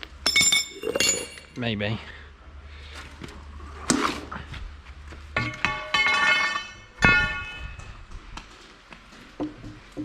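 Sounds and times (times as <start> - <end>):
metal tools clanking: 5.4 - 7.9.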